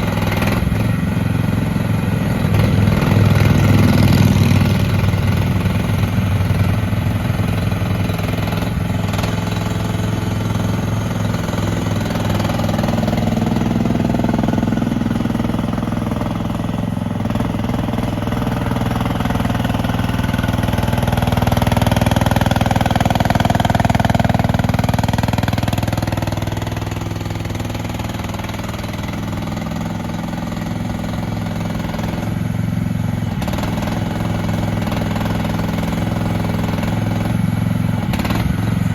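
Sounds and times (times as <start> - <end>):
mini excavator engine running: 0.0 - 38.9.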